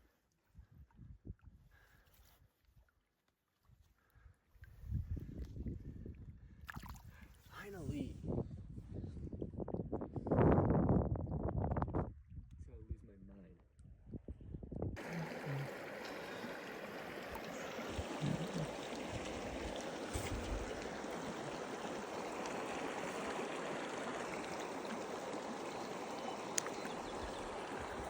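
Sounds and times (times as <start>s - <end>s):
stream water rushing: 15.0s - 28.0s.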